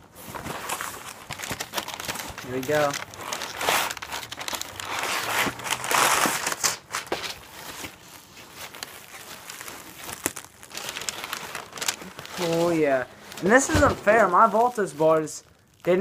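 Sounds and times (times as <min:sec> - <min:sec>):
packaging crinkling and tearing: 0:00.2 - 0:16.0
soft rustling: 0:07.1 - 0:16.0.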